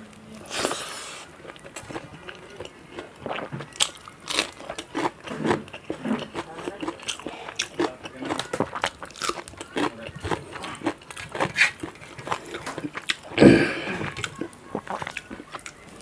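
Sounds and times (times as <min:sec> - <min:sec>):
person crunching food: 0:00.1 - 0:16.0
chewing mouth clicks: 0:01.4 - 0:13.4.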